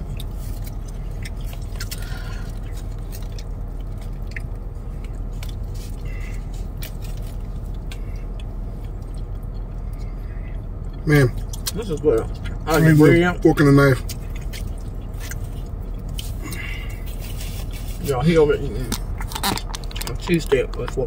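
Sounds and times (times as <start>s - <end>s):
people chewing and biting: 0.0s - 21.0s
steady low hum: 0.0s - 21.0s
foil crinkling: 18.9s - 20.6s.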